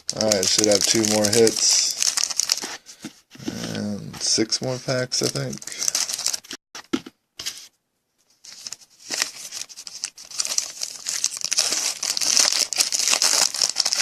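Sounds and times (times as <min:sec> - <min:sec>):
foil wrapper tearing and crinkling: 0:00.0 - 0:02.8, 0:05.2 - 0:06.6, 0:08.5 - 0:14.0.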